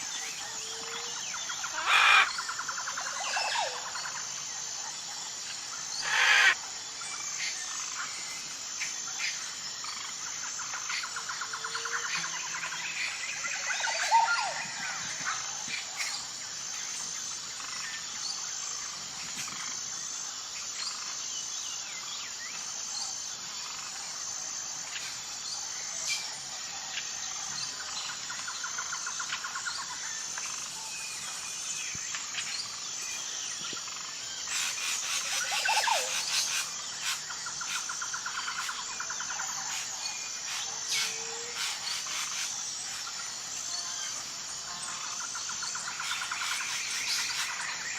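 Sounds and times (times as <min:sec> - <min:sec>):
birds chirping and calling: 0:00.0 - 0:04.0, 0:06.0 - 0:06.6, 0:11.8 - 0:16.2, 0:32.6 - 0:43.2
high insect drone: 0:00.0 - 0:47.9
fast rattling bird trills: 0:06.0 - 0:06.6.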